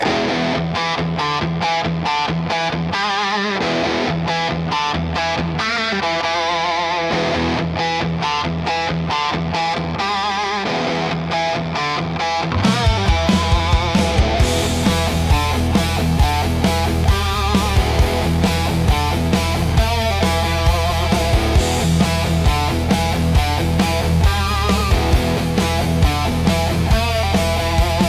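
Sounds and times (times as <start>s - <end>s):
distorted electric guitar riff: 0.0s - 28.0s
heavy drum beats: 12.5s - 28.0s.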